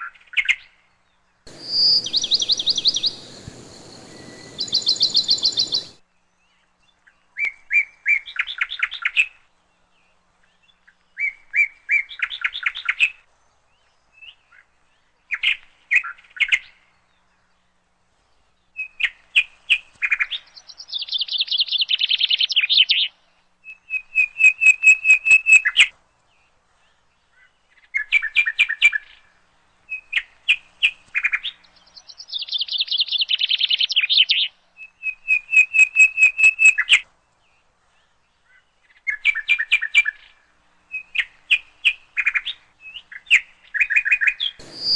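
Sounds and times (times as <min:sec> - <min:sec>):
songbird chirping and trilling: 0:00.0 - 0:17.8, 0:18.4 - 0:44.9
steady hiss: 0:01.5 - 0:06.0, 0:44.6 - 0:44.9.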